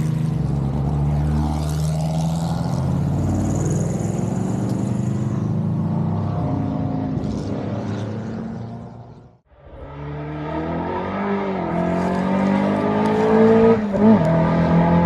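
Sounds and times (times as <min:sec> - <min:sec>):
rally car engine revving: 0:09.6 - 0:15.0.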